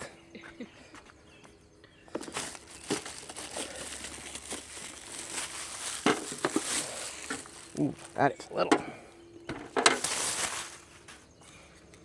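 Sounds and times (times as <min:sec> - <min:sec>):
plastic packaging crinkling: 0:02.2 - 0:08.3, 0:09.5 - 0:11.1.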